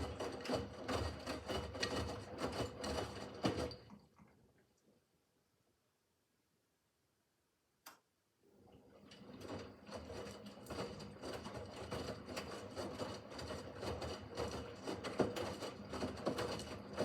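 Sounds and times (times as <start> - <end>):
washing machine motor hum: 0.0 - 4.0, 8.5 - 17.0.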